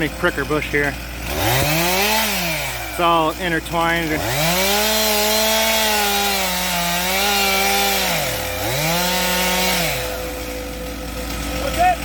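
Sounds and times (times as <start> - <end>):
chainsaw cutting brush: 0.0 - 12.0.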